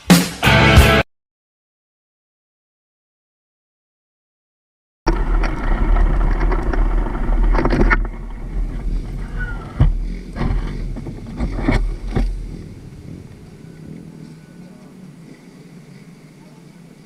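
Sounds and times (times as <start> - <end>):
motorcycle engine rumbling: 5.1 - 17.0.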